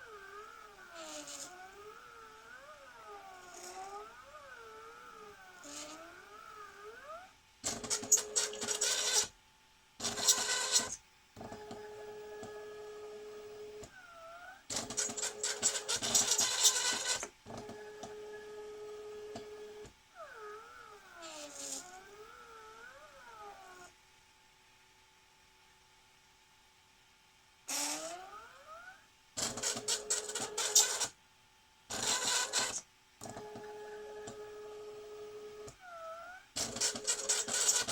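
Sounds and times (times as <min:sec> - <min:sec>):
stepper motors whining: 0:00.0 - 0:09.3
noisy mechanical bursts: 0:27.7 - 0:28.4, 0:31.9 - 0:33.5, 0:36.6 - 0:37.9.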